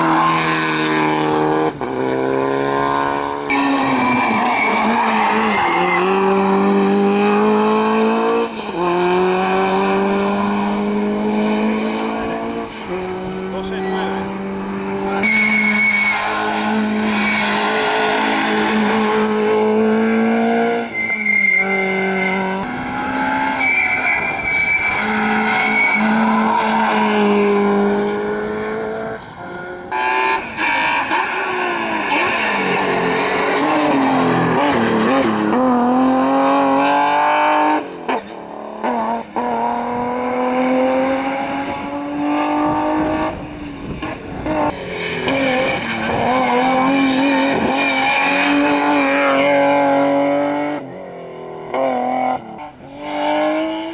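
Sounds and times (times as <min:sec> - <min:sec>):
rally car engines at full throttle: 0:00.0 - 0:53.9
tyre squeal and skidding: 0:03.4 - 0:09.8, 0:15.1 - 0:37.4, 0:42.4 - 0:51.0.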